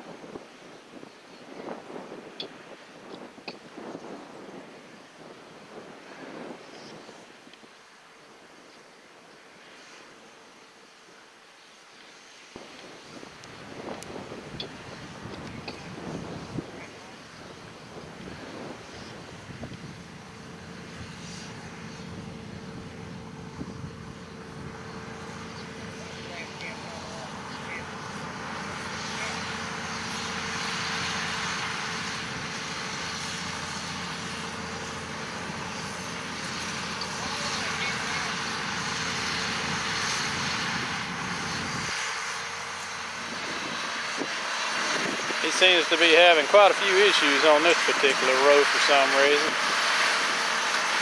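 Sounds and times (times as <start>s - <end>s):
constant machine whine: 12.6s - 51.0s
diesel engine hum: 12.6s - 51.0s.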